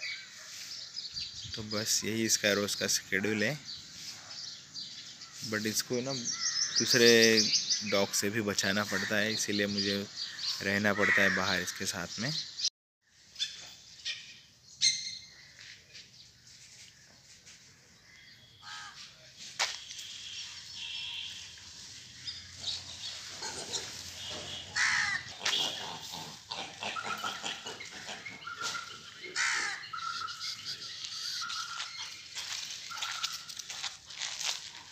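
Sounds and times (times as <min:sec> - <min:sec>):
birds calling: 0:00.0 - 0:12.7, 0:19.6 - 0:34.9
crows cawing: 0:10.2 - 0:11.7, 0:18.0 - 0:19.0, 0:23.4 - 0:33.9.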